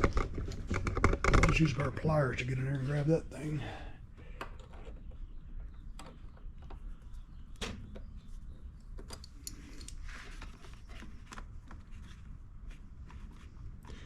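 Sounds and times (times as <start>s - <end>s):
pliers clicking and scraping metal: 9.0s - 10.0s.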